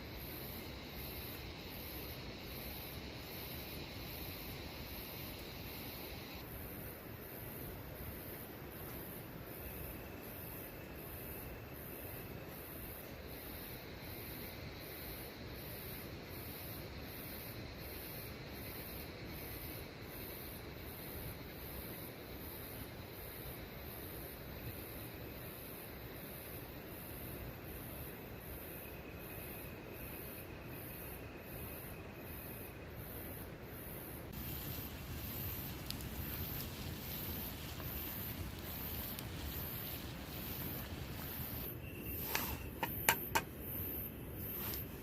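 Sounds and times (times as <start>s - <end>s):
high pulsing insect call: 0.0s - 45.0s
rain hiss: 0.0s - 45.0s
rain hissing: 34.2s - 43.5s, 44.3s - 45.0s
faint clicks: 34.4s - 41.7s.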